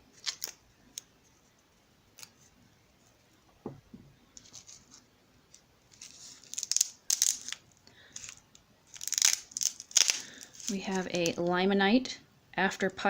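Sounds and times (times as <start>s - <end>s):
soft knock: 3.6s - 4.1s
packaging crinkling and tearing: 5.9s - 11.4s.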